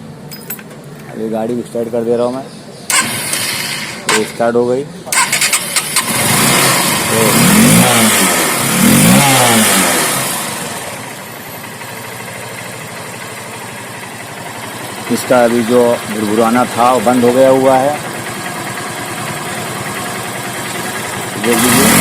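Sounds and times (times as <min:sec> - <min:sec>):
motorcycle engine idling: 0:00.0 - 0:06.2, 0:06.9 - 0:22.0.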